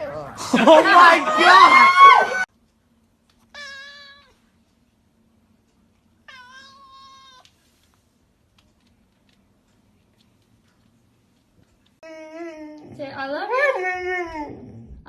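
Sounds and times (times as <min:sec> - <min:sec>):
cat meowing: 0:03.5 - 0:04.4, 0:06.3 - 0:07.5.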